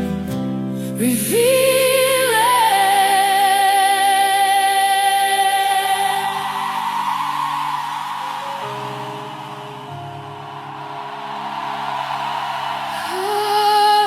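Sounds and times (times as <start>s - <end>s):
woman singing with vibrato: 1.0s - 6.9s, 12.9s - 14.0s.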